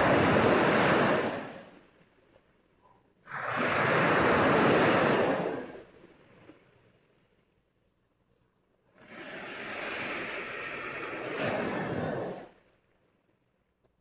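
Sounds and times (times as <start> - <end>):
sea waves washing in: 0.0 - 2.1, 3.3 - 6.8, 8.9 - 12.7.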